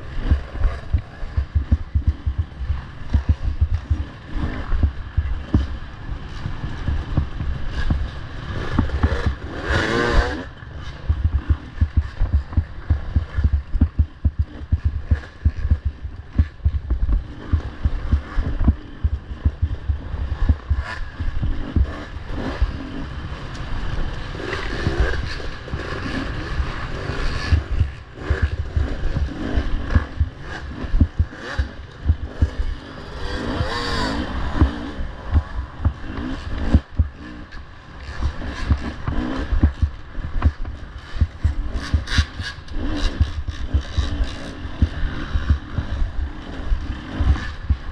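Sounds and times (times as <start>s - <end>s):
wind buffeting microphone: 0.0s - 9.5s, 11.0s - 22.7s, 24.0s - 32.7s
dirt bike engines revving: 0.0s - 47.9s.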